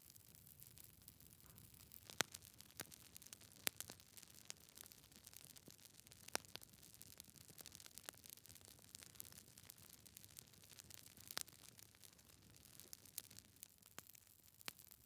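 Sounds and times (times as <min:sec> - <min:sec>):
log fire crackling and popping: 0:00.0 - 0:15.0.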